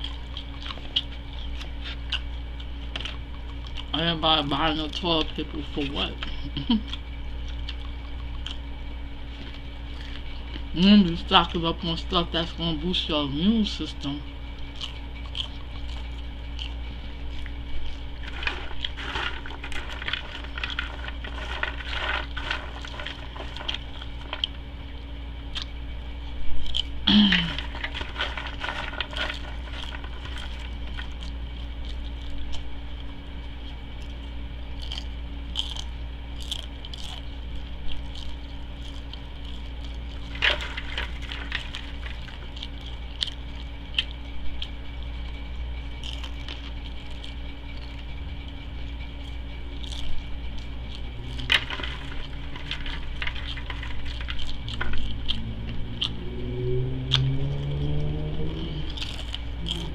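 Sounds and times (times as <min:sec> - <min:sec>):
wet chewing mouth clicks: 0:00.0 - 0:04.0, 0:06.2 - 0:10.7, 0:14.5 - 0:25.8, 0:52.3 - 0:59.9
steady low hum: 0:00.0 - 0:59.9.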